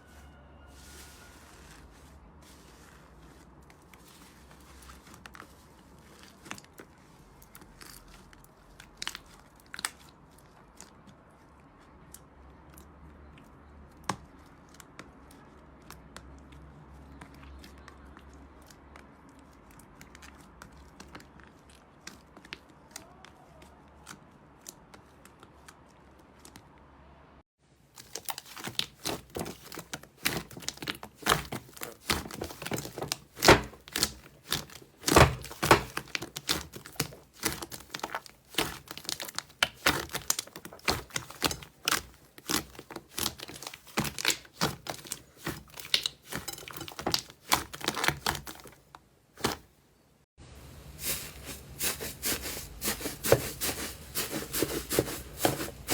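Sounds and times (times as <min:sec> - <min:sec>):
slime crackling and popping: 0:03.7 - 0:11.4, 0:28.0 - 0:48.8.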